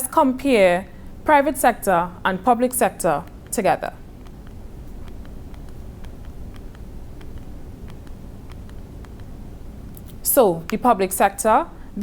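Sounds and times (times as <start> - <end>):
low background rumble: 0.0 - 12.0
faint irregular ticks: 3.2 - 10.8.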